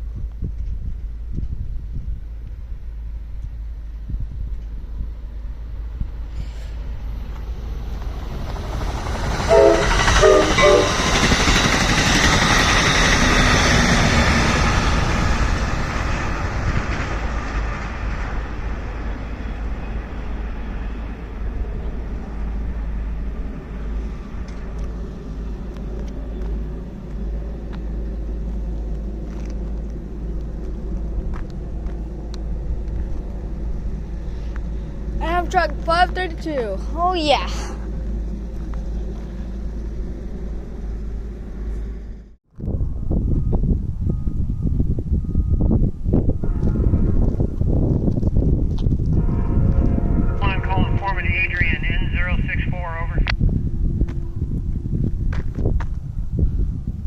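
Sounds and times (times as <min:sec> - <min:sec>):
soft train rumble: 0:00.0 - 0:57.0
train rushing by: 0:00.6 - 0:57.0
train horn blasts: 0:09.4 - 0:11.2, 0:46.4 - 0:47.5, 0:49.1 - 0:51.2.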